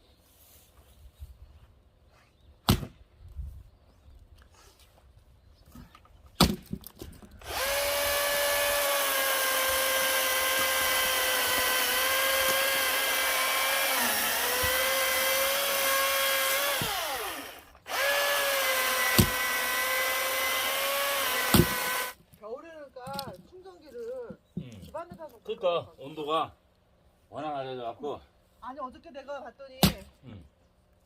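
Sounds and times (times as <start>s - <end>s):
chainsaw cutting wood: 7.4s - 22.2s.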